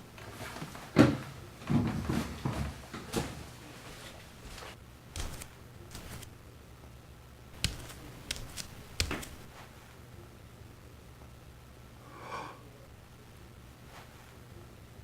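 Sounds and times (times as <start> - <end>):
sharp clicks and knocks: 5.2 - 6.3, 7.6 - 9.5.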